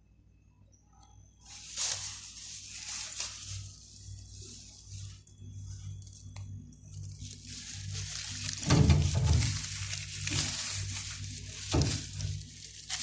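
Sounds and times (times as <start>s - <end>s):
packaging crinkling and rustling: 1.4s - 13.0s.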